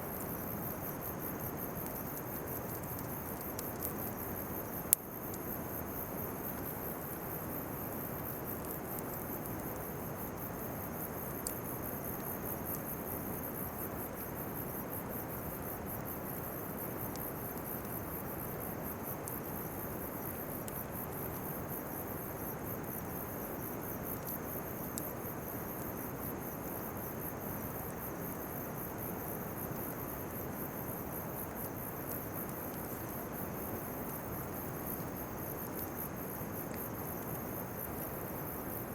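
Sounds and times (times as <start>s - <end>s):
insects chirping: 0.0s - 38.9s
bonfire popping: 0.1s - 6.8s.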